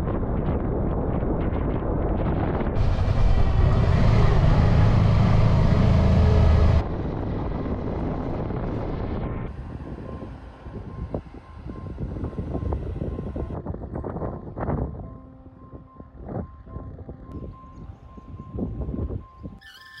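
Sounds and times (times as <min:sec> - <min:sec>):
wind rushing over microphone: 0:00.0 - 0:19.6
motorcycle engine running: 0:02.8 - 0:08.3.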